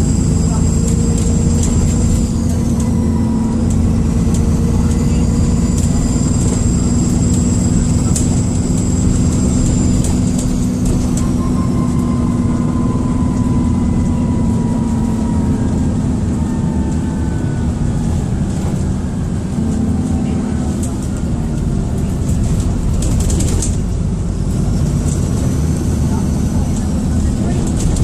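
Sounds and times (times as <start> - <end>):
turbocharger whistling: 0.0 - 18.4
bus engine drone: 0.0 - 28.0.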